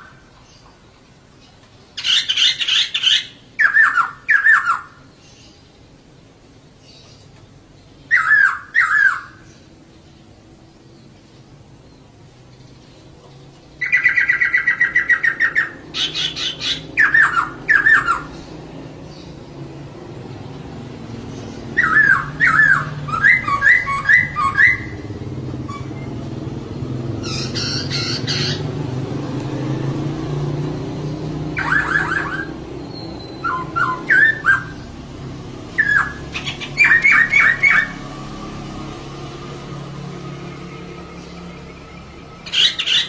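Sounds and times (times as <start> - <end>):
bird harsh chattering: 2.0 - 4.9, 8.1 - 9.4, 13.8 - 18.4, 21.5 - 25.1, 27.2 - 28.8, 31.6 - 34.8, 35.8 - 38.0, 42.4 - 43.0
laughingthrush calling: 2.0 - 5.1, 8.1 - 9.5, 13.8 - 19.4, 21.1 - 29.3, 31.0 - 38.0, 40.5 - 43.0.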